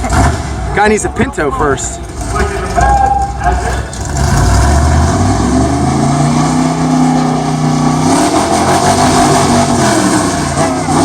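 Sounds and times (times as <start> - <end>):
truck engine revving hard: 0.0 - 0.8, 3.6 - 11.0.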